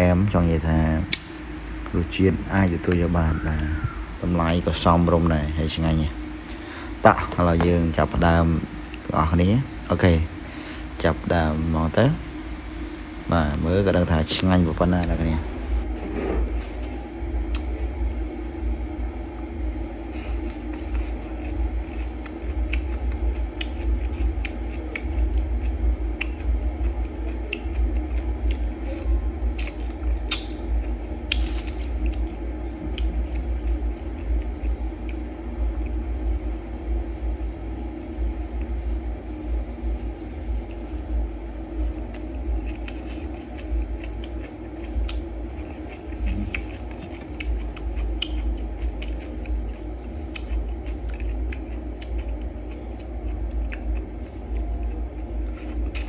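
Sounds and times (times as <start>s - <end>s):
steady low hum: 0.0s - 56.0s
man chewing crunchy salad: 19.4s - 56.0s.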